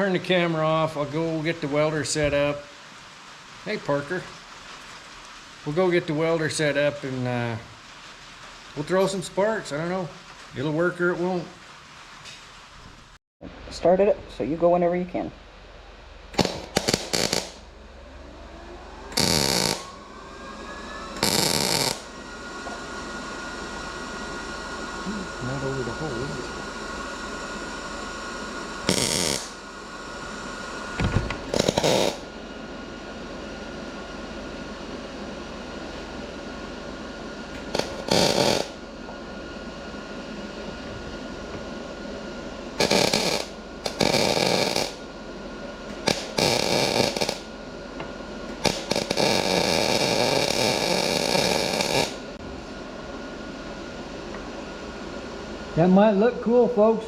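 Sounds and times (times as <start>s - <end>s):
crackling arc welding: 0.0s - 13.2s, 16.3s - 17.8s, 19.1s - 20.0s, 21.0s - 32.6s, 36.9s - 39.0s, 42.7s - 45.2s, 45.9s - 47.6s, 48.5s - 52.4s
steady machine hum: 0.0s - 57.0s.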